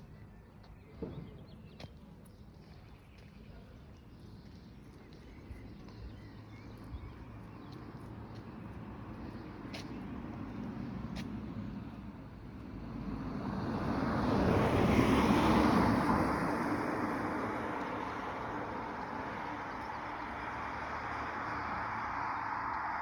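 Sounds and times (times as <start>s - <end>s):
steady traffic: 0.0s - 23.0s
vehicle passing close by: 12.7s - 23.0s.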